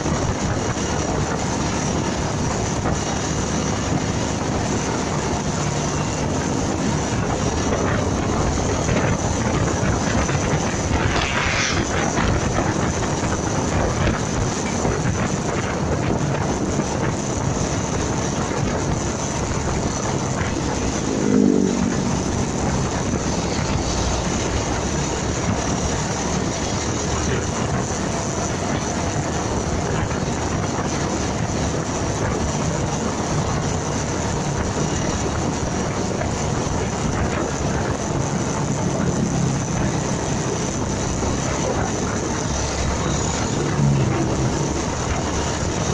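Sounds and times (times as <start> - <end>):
motorcycle engine and road noise: 0.0 - 45.9
wind rush on microphone: 0.0 - 45.9
falling pitch tone: 21.0 - 23.4.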